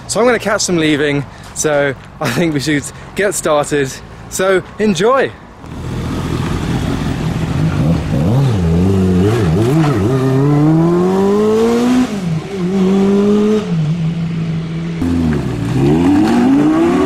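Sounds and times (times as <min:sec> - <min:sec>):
car engine revving and accelerating: 0:05.7 - 0:17.0.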